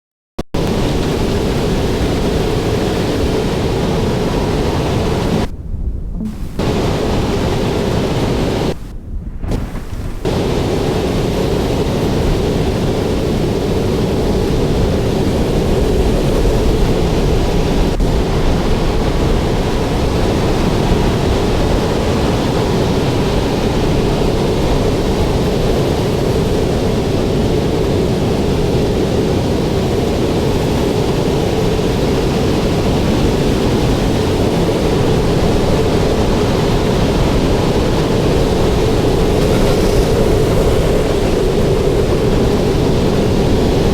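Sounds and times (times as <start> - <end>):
strong storm wind roaring: 0.6 - 43.9
constant droning tone: 36.0 - 43.9.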